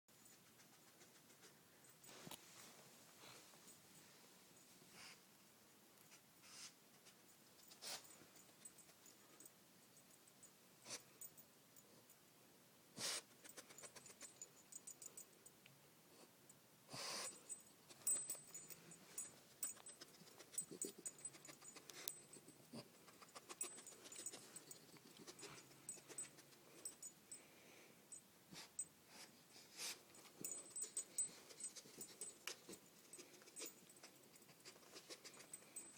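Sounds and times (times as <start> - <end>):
dog sniffing: 13.0 - 14.4, 16.9 - 18.2, 19.6 - 27.0, 28.5 - 35.9.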